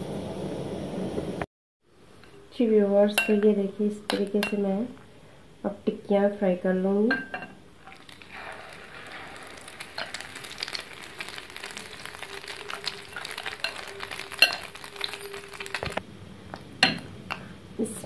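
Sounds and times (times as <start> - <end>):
patties sizzling in oil: 7.8 - 17.1.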